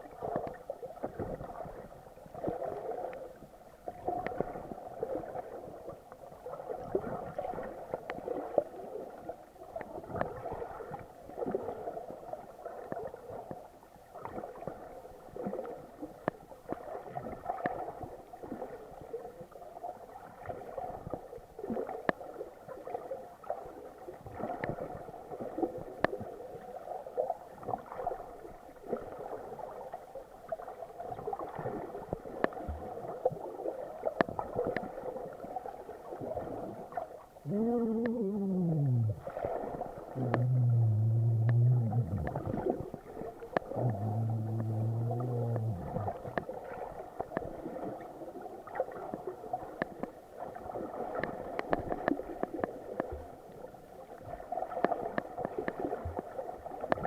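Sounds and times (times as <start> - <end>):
muffled underwater gurgling and sloshing: 30.5 - 49.7.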